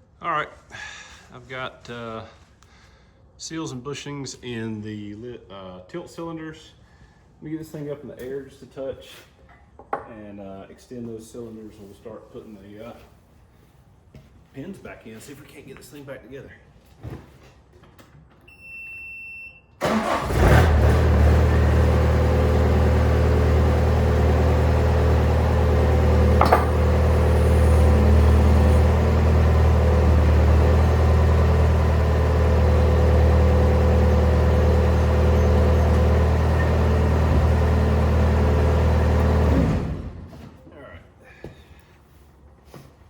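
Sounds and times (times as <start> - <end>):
diesel engine starting and running: 19.8 - 40.4.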